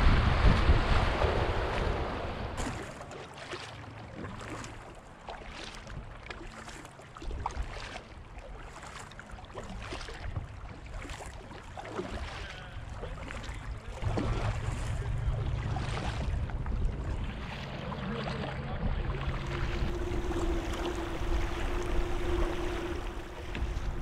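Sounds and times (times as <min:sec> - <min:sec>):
wind buffeting microphone: 0:00.0 - 0:02.6, 0:12.2 - 0:24.0.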